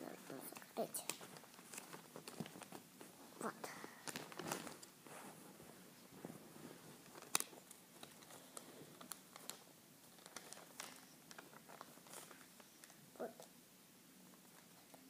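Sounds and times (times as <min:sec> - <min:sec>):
paper rustling and creasing: 0:00.0 - 0:03.2, 0:03.9 - 0:13.0.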